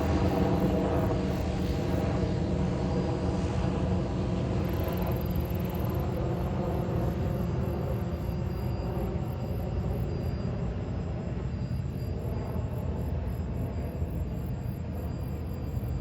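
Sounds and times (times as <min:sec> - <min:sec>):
faint steady tones: 0:00.0 - 0:16.0
jet engines rumbling: 0:00.0 - 0:16.0.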